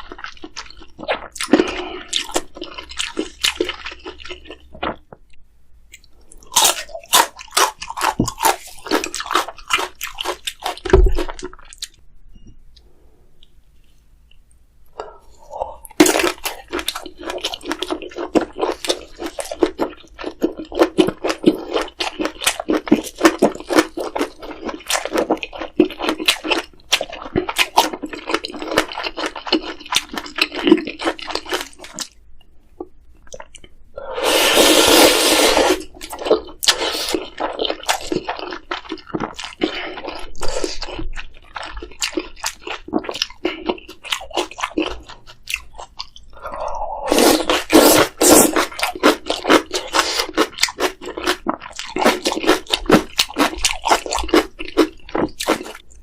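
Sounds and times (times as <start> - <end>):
wet chewing and smacking: 0.0 - 13.6, 15.8 - 33.8, 35.8 - 56.0
noodle slurping: 34.1 - 38.5, 46.4 - 54.8.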